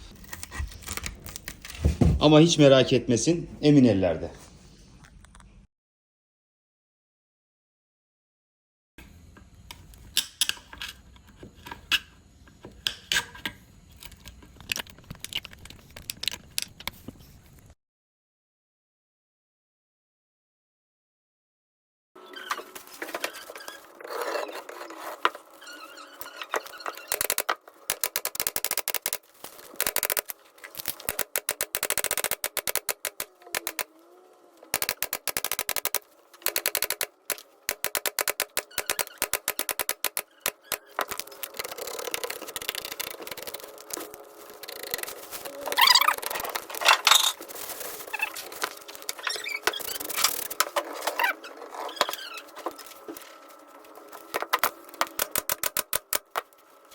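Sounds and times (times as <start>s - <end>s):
clicking and tapping on wicker: 26.6s - 33.9s, 34.8s - 50.8s, 54.3s - 56.5s.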